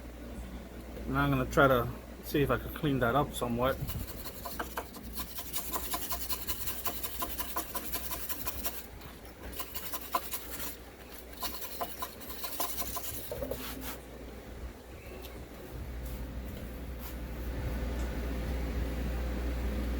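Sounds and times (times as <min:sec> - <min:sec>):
hand tool scraping metal: 0:03.7 - 0:13.8.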